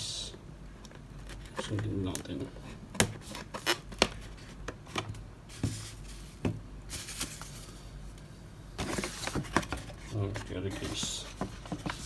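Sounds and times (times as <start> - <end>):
packaging rustling: 3.1 - 8.0, 8.8 - 12.0.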